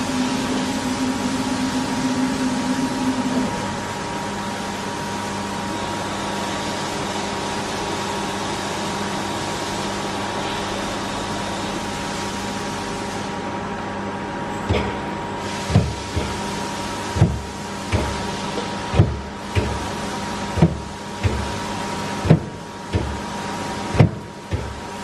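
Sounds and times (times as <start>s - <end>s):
machine hum and hiss: 0.0s - 25.0s
machine clunk: 14.6s - 16.5s, 23.9s - 24.9s.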